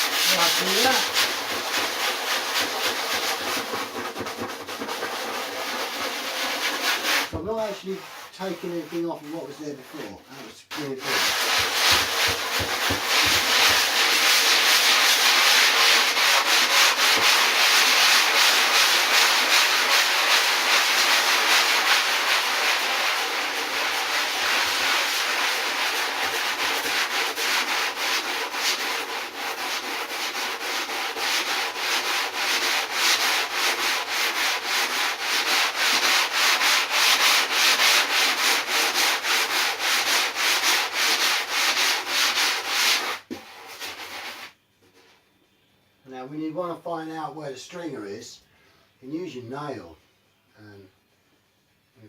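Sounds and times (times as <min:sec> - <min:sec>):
sandpaper rubbing on foam: 0:00.0 - 0:44.6.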